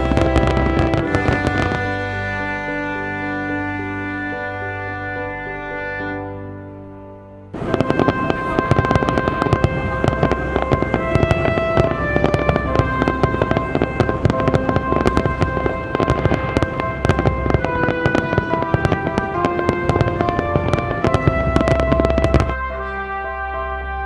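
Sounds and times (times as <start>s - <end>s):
fireworks bangs and crackles: 0.0s - 2.9s, 7.6s - 22.7s
music playing: 0.0s - 24.0s.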